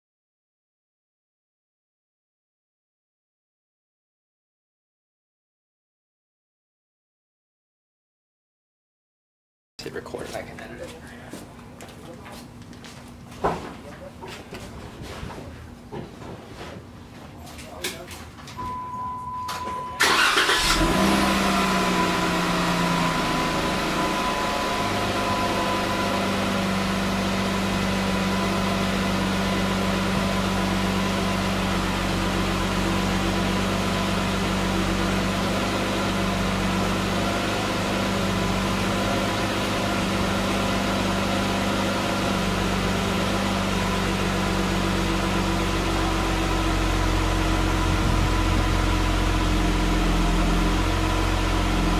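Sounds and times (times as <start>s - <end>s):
car engine starting and idling: 18.6s - 51.9s.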